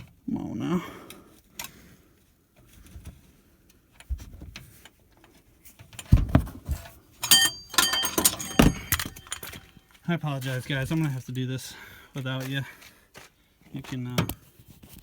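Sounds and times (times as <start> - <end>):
dull knocks of metal tools: 7.2 - 9.8
metallic clinks and rattles: 7.2 - 10.0.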